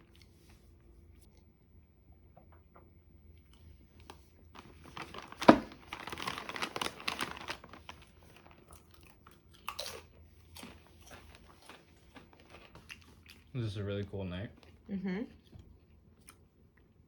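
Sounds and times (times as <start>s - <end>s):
snack packaging crinkling: 4.0s - 13.6s.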